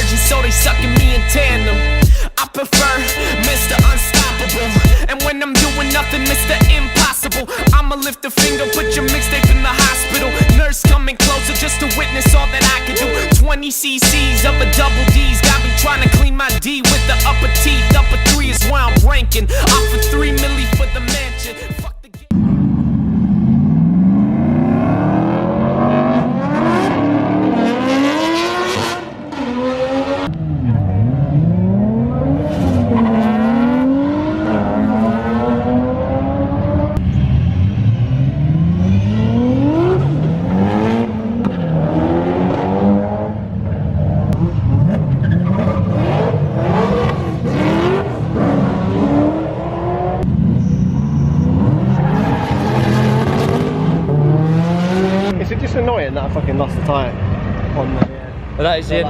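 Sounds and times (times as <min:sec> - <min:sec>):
car engines revving hard: 0:14.0 - 0:21.4, 0:22.3 - 0:59.0.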